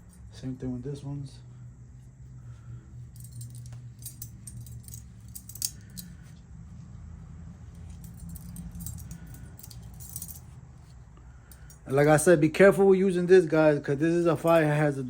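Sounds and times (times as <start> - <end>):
metallic jingling and clinking: 0.0 - 0.4, 2.9 - 6.4, 7.6 - 12.3, 14.2 - 15.0.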